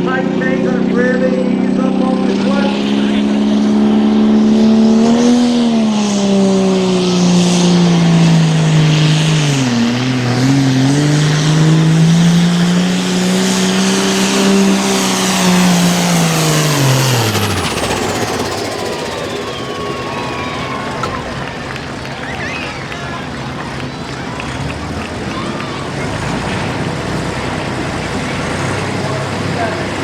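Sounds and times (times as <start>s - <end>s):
high whine winding down: 0.0s - 23.9s
tractor diesel engine under load: 0.0s - 30.0s.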